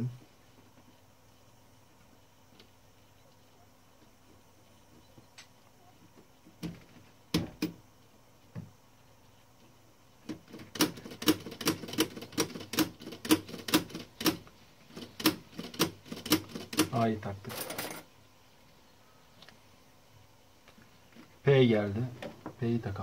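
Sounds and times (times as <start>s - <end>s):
typewriter keys clacking: 10.5s - 14.4s, 15.0s - 18.0s.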